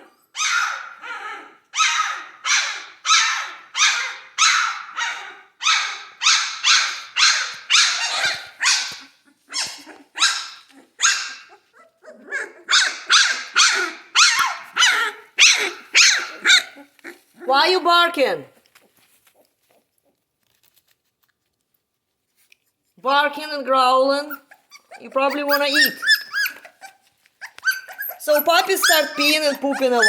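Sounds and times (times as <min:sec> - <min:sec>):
puppies barking: 0:00.4 - 0:17.8, 0:24.3 - 0:30.0.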